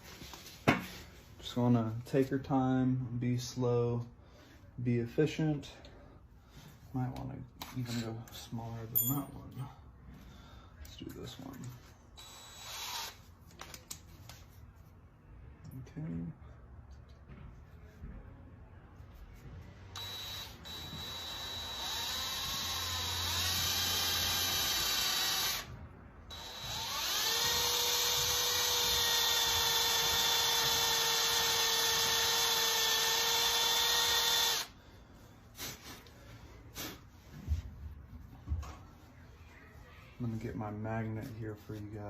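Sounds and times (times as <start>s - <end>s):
cordless drill whining: 12.2s - 13.2s, 20.0s - 25.7s, 26.3s - 34.8s.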